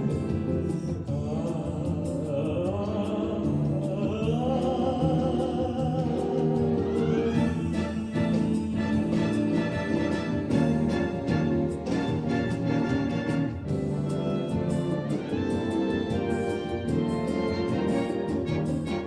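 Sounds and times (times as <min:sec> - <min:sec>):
brass band playing: 0:06.0 - 0:19.0.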